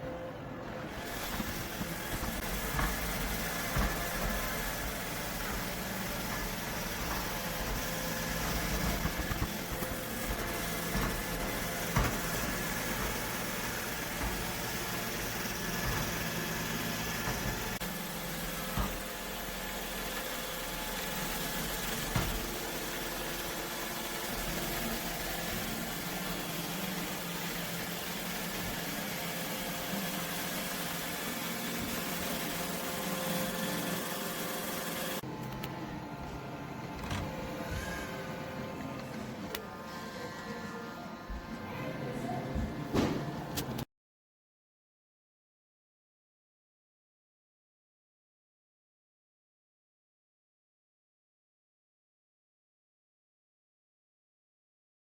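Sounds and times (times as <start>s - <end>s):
robot vacuum motor hum: 0.8s - 43.7s.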